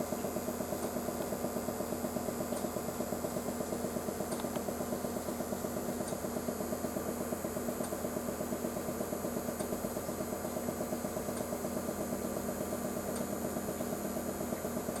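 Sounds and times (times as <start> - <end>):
machine humming with fast pulsing: 0.0 - 15.0.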